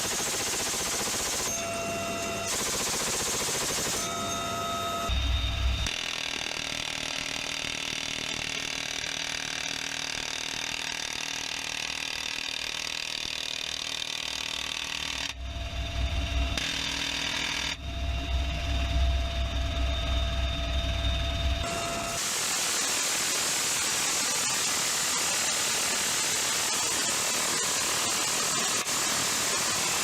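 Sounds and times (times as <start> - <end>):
minigun firing bursts: 0.0 - 1.6, 2.5 - 4.2
aircraft engine whine: 3.7 - 5.9, 17.6 - 22.4
hiss: 22.2 - 30.0.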